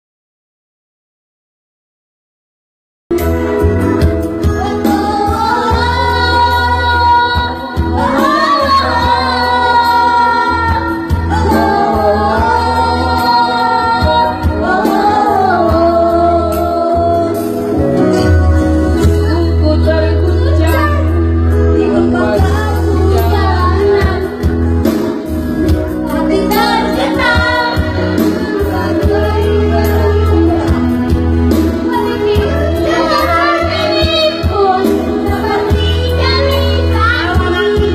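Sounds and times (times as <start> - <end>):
musical accompaniment with bass: 3.1 - 37.9
child singing: 26.1 - 31.0, 31.9 - 37.9.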